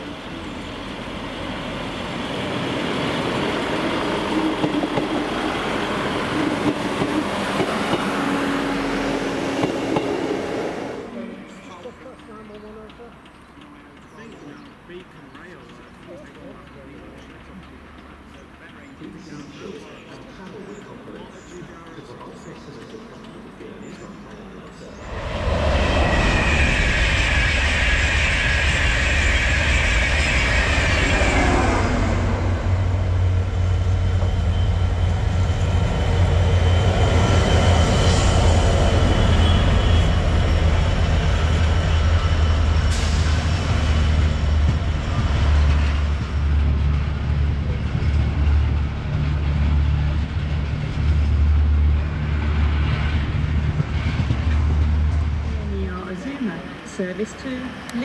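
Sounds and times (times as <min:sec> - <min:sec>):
freight wagons rumbling on rails: 0:00.0 - 0:58.0
locomotive whine: 0:19.2 - 0:58.0.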